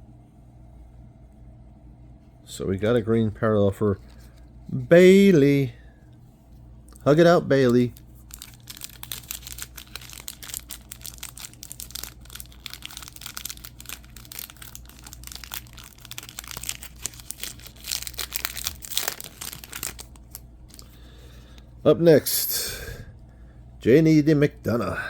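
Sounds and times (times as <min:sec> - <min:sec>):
foil wrapper crinkling: 0:07.0 - 0:21.6.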